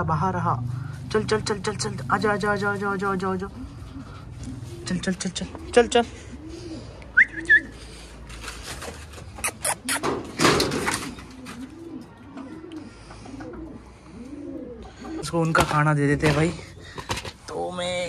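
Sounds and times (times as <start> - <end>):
bird cooing: 1.8 - 8.2, 9.2 - 15.6.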